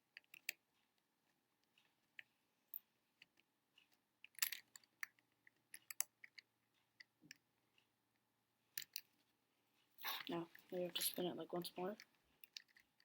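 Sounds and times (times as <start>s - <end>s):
small plastic clicks: 0.0s - 9.1s, 12.0s - 13.0s.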